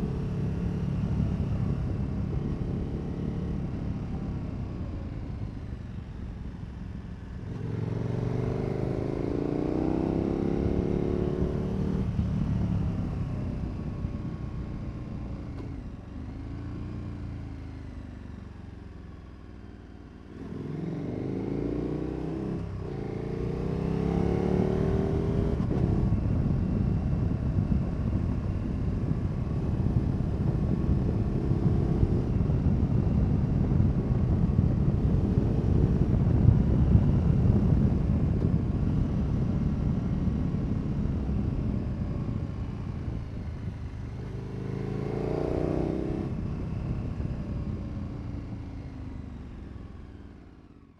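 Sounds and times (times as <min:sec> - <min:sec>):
motorcycle engine accelerating: 0:00.0 - 0:06.3, 0:07.2 - 0:50.9.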